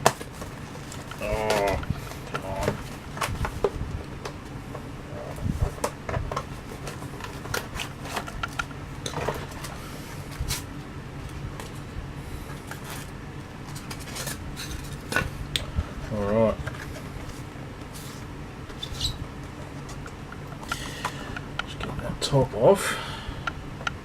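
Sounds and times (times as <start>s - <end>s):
packaging clicks and rustles: 0.0s - 4.4s, 5.3s - 10.7s
low steady hum: 0.0s - 24.0s.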